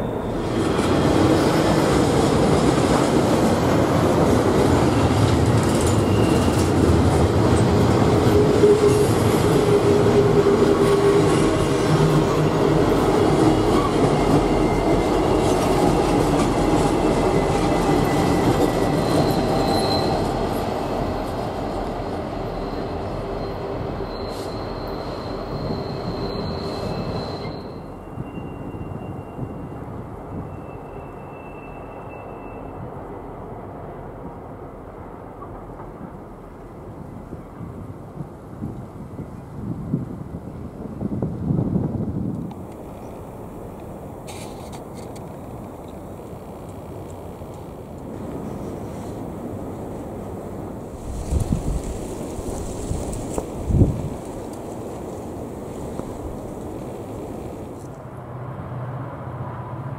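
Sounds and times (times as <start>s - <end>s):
steel wheels squealing on rails: 0.0s - 33.6s, 44.1s - 58.0s
freight train rumbling: 0.0s - 59.9s.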